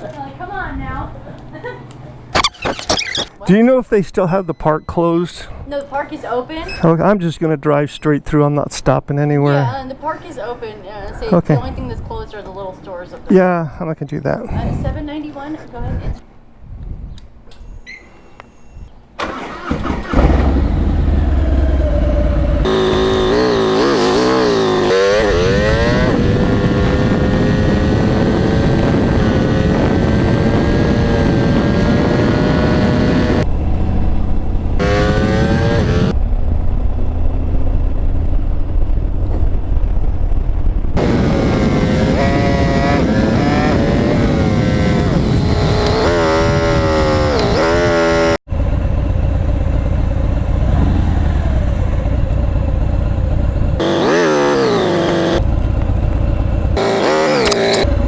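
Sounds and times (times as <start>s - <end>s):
motorcycle engine accelerating: 19.3s - 37.0s, 40.8s - 58.0s
wind and road rumble: 19.5s - 58.0s.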